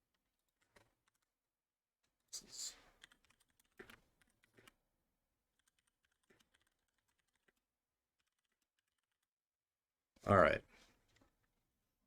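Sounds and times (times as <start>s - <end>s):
keyboard typing: 0.2s - 1.4s, 2.7s - 4.8s, 5.5s - 9.3s.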